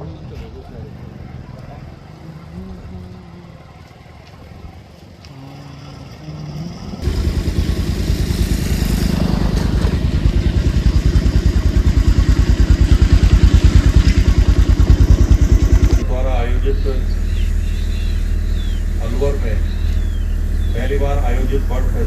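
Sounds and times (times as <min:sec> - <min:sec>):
engine low thudding: 0:06.1 - 0:22.0.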